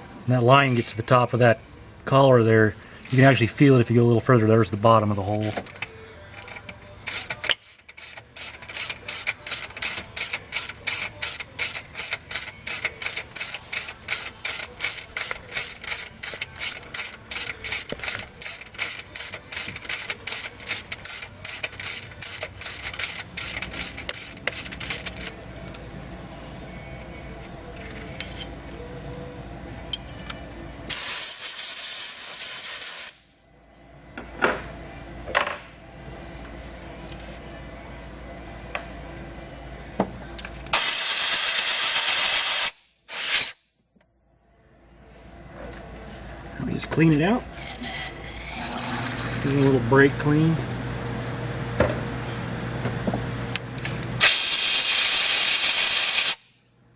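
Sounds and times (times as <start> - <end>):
ratchet wrench clicking: 5.3 - 25.4
compressed air blast: 30.9 - 33.3, 40.7 - 43.6, 54.2 - 56.4.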